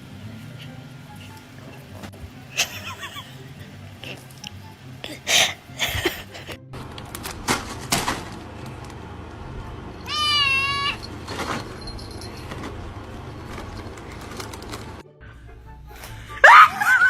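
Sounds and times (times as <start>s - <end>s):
cat meowing: 10.0s - 11.0s.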